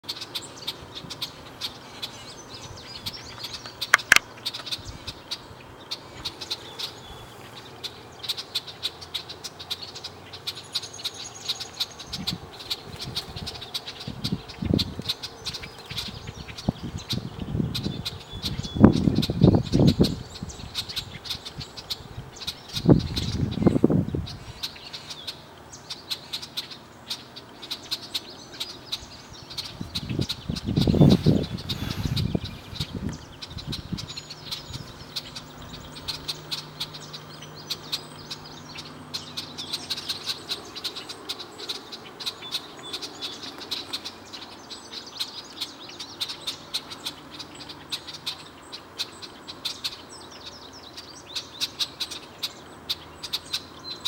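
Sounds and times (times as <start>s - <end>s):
blackbird chip notes: 0.1s - 5.3s.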